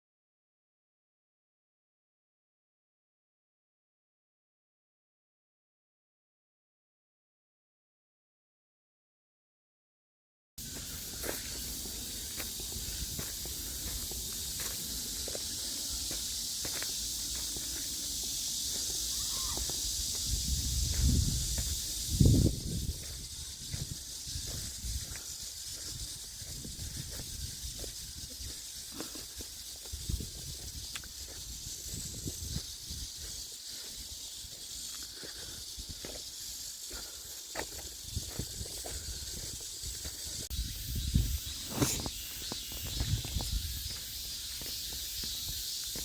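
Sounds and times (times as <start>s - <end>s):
insects droning: 10.6s - 46.0s.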